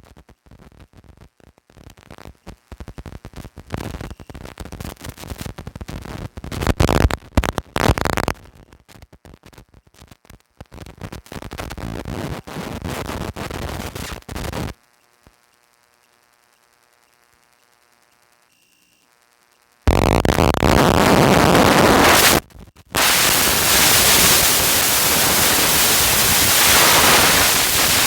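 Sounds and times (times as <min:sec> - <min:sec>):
rough crackling noise buffeting microphone: 0:03.0 - 0:14.8, 0:19.9 - 0:28.0.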